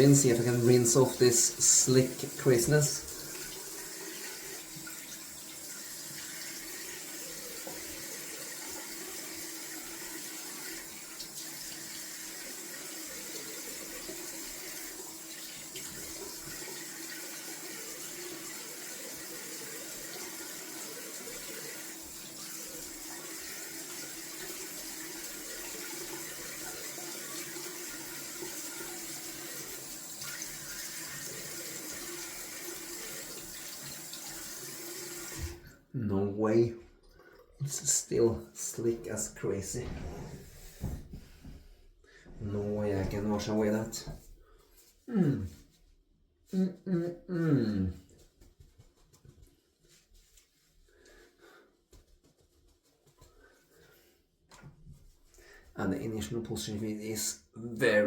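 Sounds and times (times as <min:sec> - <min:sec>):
tap running into a sink: 0:12.7 - 0:35.6, 0:39.8 - 0:41.6.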